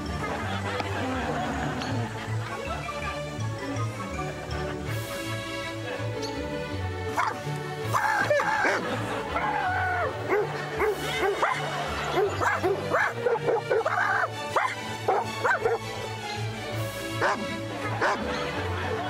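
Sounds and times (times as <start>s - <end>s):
background music with bass line: 0.0s - 19.0s
dog barking and yipping: 7.2s - 8.9s, 10.3s - 15.9s, 17.2s - 18.2s.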